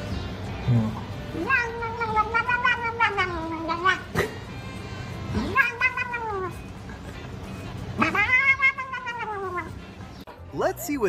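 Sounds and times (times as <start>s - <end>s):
cat yowling: 1.3s - 4.4s, 5.3s - 6.6s, 7.9s - 9.8s.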